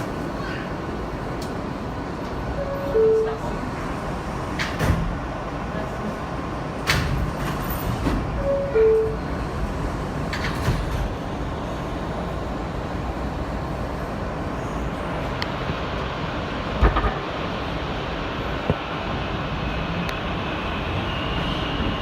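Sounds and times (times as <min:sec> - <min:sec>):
subway train rumble and hiss: 0:00.0 - 0:22.0
two-note tone: 0:02.6 - 0:03.4.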